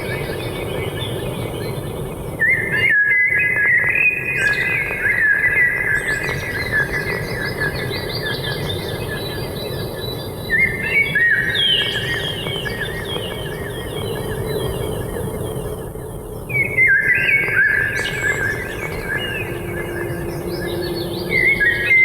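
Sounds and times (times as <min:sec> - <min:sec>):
low background hum: 0:00.0 - 0:22.0
birds chirping: 0:10.2 - 0:22.0.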